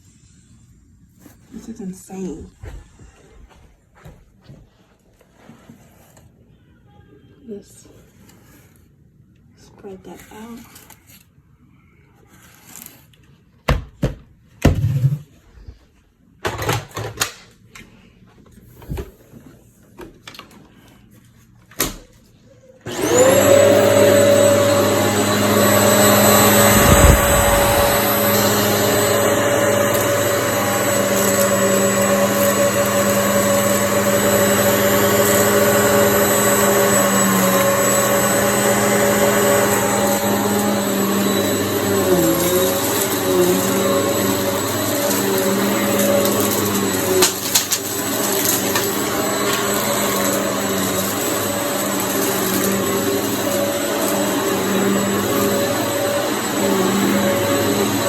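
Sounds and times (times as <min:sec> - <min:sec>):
vacuum cleaner running: 0:14.7 - 0:15.2, 0:18.7 - 0:19.6, 0:22.8 - 0:58.0.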